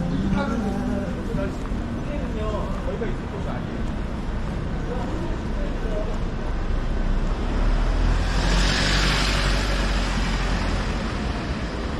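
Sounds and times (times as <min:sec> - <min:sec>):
low traffic rumble: 0:00.0 - 0:11.9
car passing by: 0:07.0 - 0:11.9.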